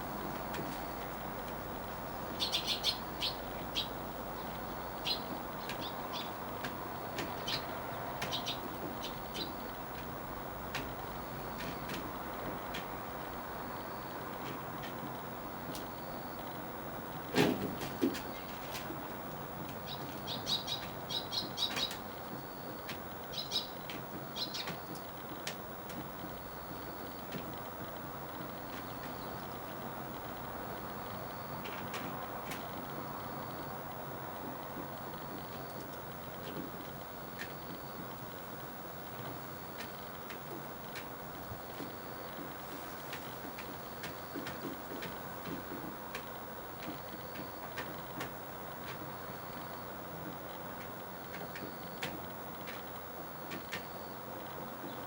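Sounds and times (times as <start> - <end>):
low background hum: 0.0 - 55.0
steady background hiss: 0.0 - 55.0
small bird chirping: 2.3 - 6.4, 7.4 - 9.6, 19.9 - 22.0.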